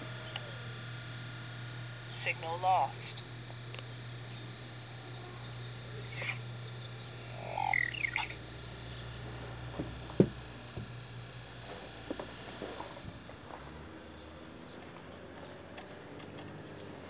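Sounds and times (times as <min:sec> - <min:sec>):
high whine: 0:00.0 - 0:17.0
low hum: 0:00.0 - 0:17.0
bird chirps: 0:06.1 - 0:09.0, 0:14.2 - 0:16.1
sharp clicks: 0:07.4 - 0:08.5.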